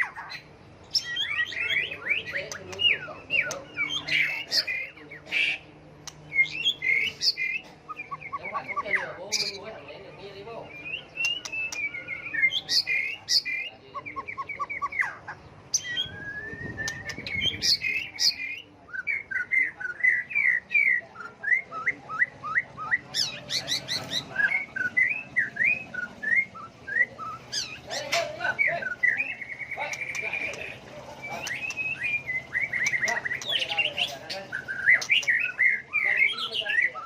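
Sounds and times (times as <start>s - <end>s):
bird singing varied whistles: 10.7s - 15.0s, 15.7s - 23.6s, 24.4s - 27.8s.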